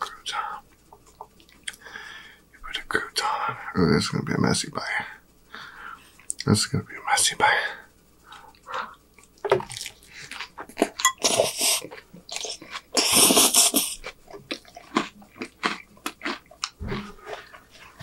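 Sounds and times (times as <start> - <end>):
close chewing with crunching: 8.3 - 18.0.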